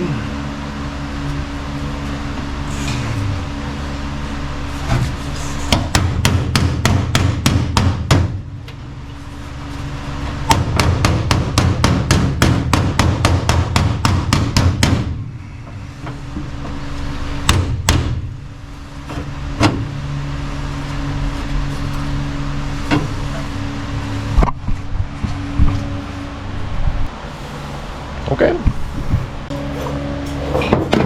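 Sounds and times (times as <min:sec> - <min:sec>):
steady low hum: 0:00.0 - 0:31.0
hammer blows on sheet metal: 0:10.5 - 0:15.2.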